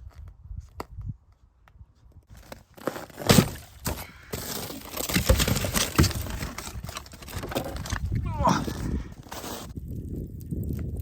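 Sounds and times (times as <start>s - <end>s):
rough rustling noise: 2.0s - 9.8s
firewood knocking and cracking: 4.7s - 8.3s.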